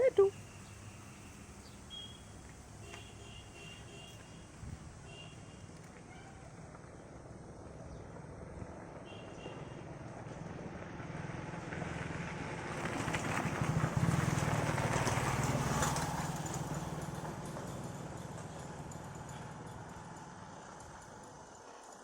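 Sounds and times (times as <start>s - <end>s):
vehicle passing by: 7.6s - 21.2s.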